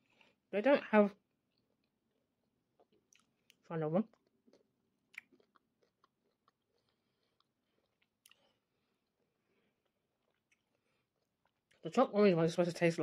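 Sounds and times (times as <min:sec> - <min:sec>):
faint chewing mouth clicks: 0:02.8 - 0:11.8.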